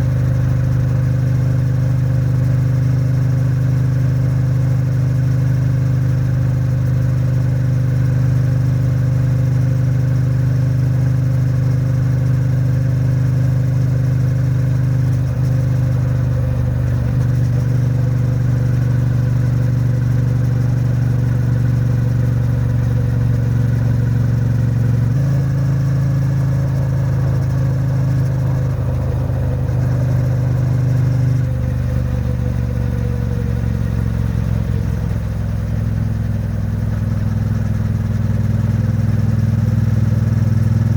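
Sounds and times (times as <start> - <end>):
motorcycle engine cruising: 11.0 - 40.9.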